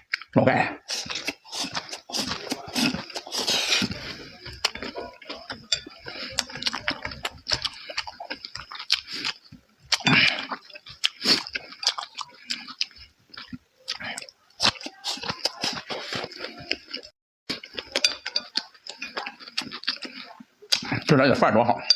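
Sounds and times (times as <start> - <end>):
wet mouth clicks: 0.0 - 4.0
chewing and slurping: 0.0 - 21.1.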